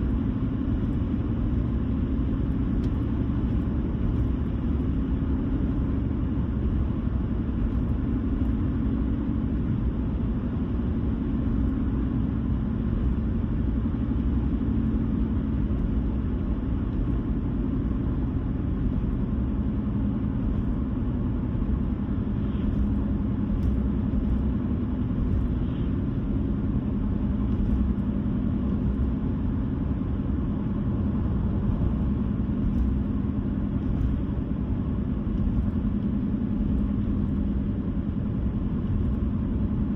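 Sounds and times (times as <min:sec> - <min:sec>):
car tyre and engine rumble: 0:00.0 - 0:39.9.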